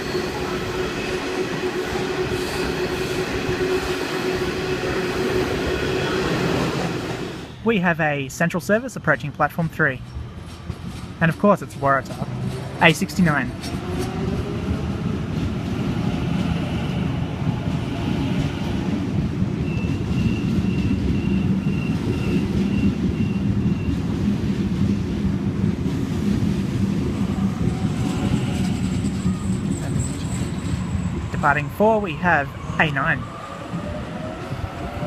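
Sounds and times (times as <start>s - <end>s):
high-pitched train whine: 0.0s - 7.9s, 26.4s - 35.0s
electric train low rumble: 0.0s - 35.0s.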